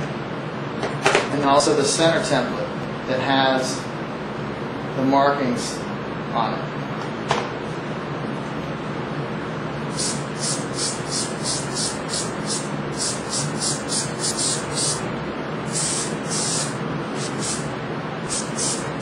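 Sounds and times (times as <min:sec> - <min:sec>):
steady background hum: 0:00.0 - 0:19.0
aerosol spray hissing bursts: 0:09.9 - 0:15.0, 0:15.7 - 0:17.7, 0:18.3 - 0:19.0.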